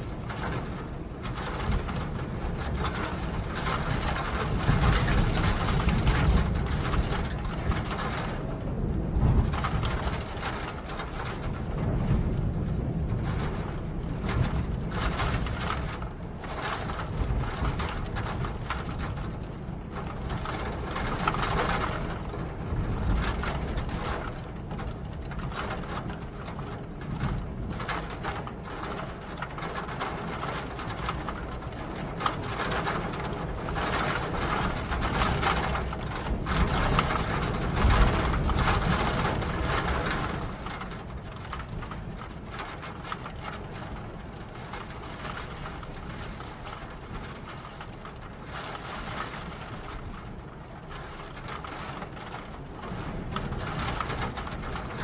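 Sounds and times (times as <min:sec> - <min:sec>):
rain patter: 0:00.0 - 0:55.0.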